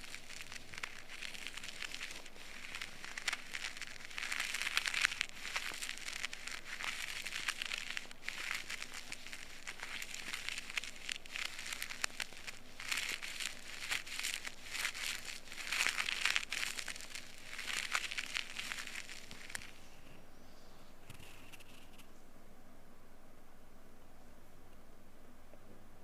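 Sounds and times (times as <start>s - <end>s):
ear pick crackling in ear canal: 0.0s - 20.0s.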